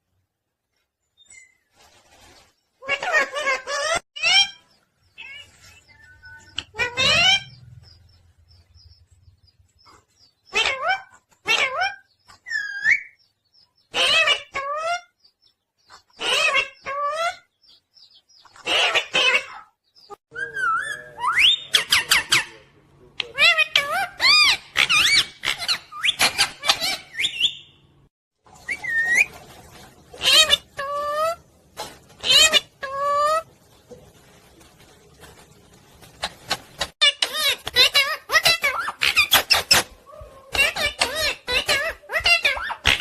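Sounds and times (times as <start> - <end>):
parrot squawking: 5.2 - 7.6, 10.5 - 13.2, 13.9 - 15.1, 16.2 - 17.5, 18.6 - 27.8, 30.2 - 31.4, 32.2 - 33.5, 36.2 - 43.0.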